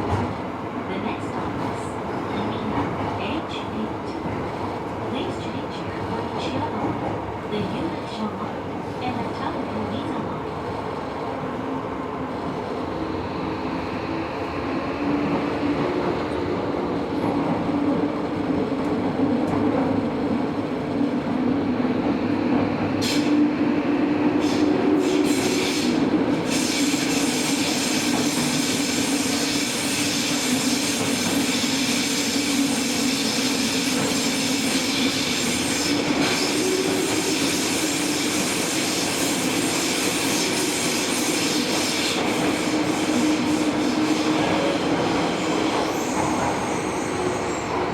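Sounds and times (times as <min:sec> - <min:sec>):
electric train rumble and hum: 0:00.0 - 0:47.9
train wheel squeals: 0:45.2 - 0:47.9.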